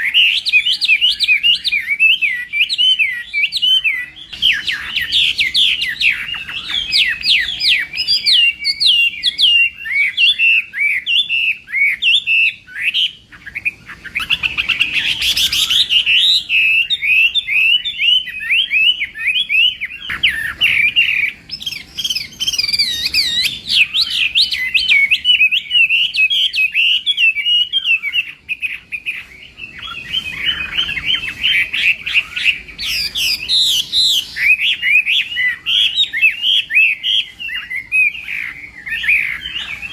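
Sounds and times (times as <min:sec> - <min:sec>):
bird singing whistled song: 0:00.0 - 0:39.9.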